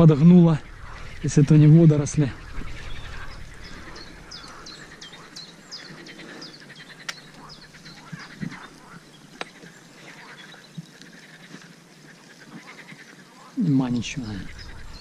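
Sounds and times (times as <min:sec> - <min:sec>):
birds chirping: 0:00.0 - 0:15.0
sharp clicks: 0:07.0 - 0:08.6.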